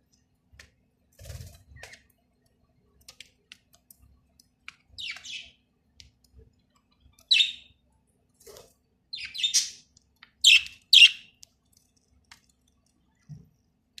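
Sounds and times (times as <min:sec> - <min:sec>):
bird chirping: 0:05.0 - 0:05.6, 0:07.2 - 0:07.8, 0:09.1 - 0:11.4.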